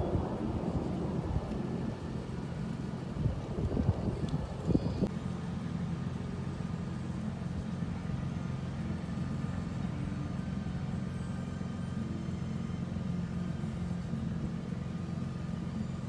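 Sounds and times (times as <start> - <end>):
wind noise on microphone: 0.0 - 5.1
vehicle engine idling: 0.0 - 16.0.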